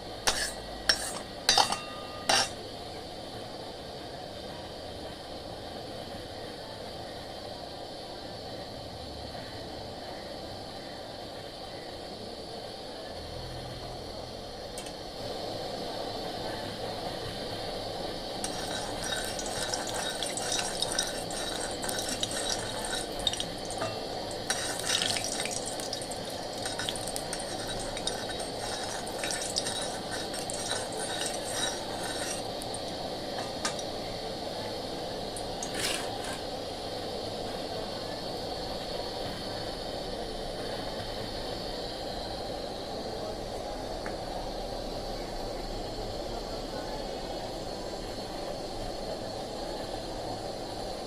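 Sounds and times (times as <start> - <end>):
kitchen hum: 0.0 - 4.6, 13.8 - 42.0
metal pan clinking: 0.3 - 2.6, 18.4 - 33.9.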